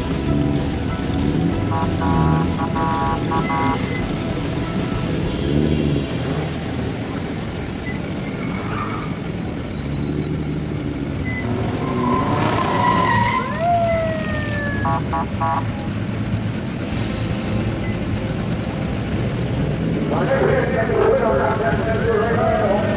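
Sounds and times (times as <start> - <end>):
vehicle engines rumbling: 0.0 - 22.9
siren blips: 1.4 - 4.2, 11.2 - 15.6
siren whoop: 12.2 - 15.2.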